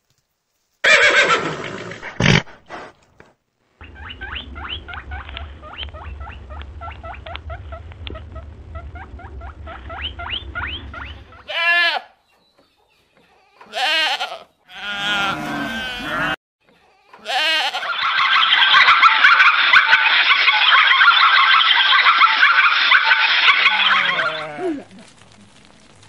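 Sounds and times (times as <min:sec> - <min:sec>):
horse whinnying: 0:00.8 - 0:02.6
low rumble: 0:03.8 - 0:11.5
quick rising chirps: 0:03.8 - 0:11.5
goat bleating: 0:11.4 - 0:12.2, 0:13.5 - 0:16.4, 0:17.1 - 0:17.9, 0:23.7 - 0:24.9.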